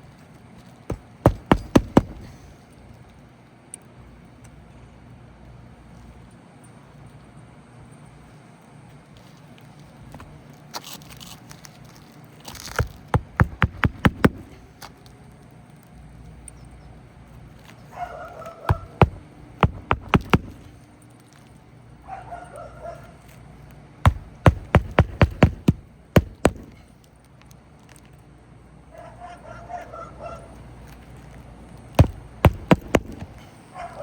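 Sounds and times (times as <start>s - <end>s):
hammer driving nails: 0.9s - 2.5s, 12.6s - 14.6s, 18.7s - 20.7s, 24.1s - 26.8s, 32.0s - 33.5s.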